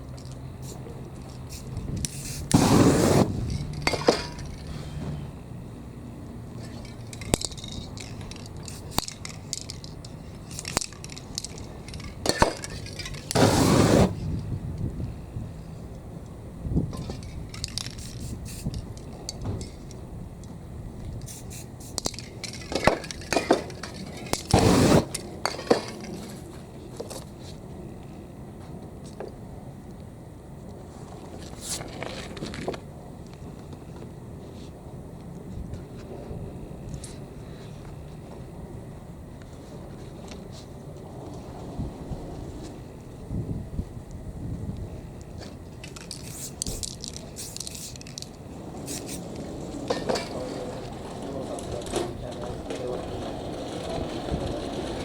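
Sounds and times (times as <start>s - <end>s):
spray paint can hissing: 0.6s - 0.8s, 1.4s - 3.4s, 13.2s - 14.2s, 17.9s - 18.7s, 21.2s - 22.1s, 24.4s - 25.2s, 46.1s - 49.3s
cans and tools clinking: 3.5s - 4.7s.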